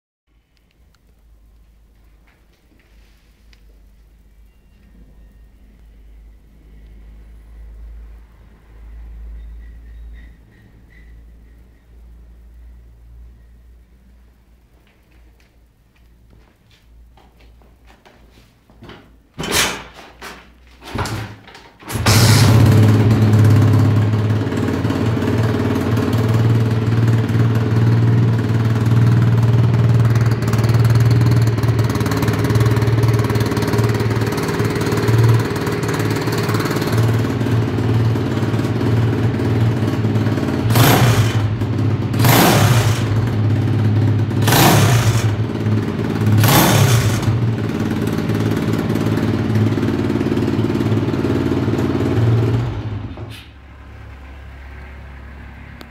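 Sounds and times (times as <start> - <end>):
motorbike engine idling and revving: 21.9 - 55.9.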